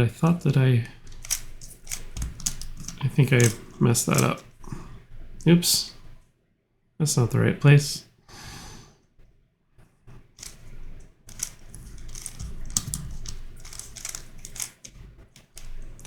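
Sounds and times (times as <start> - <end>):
plastic twisty puzzle clicking: 0.3 - 4.6, 10.4 - 16.0.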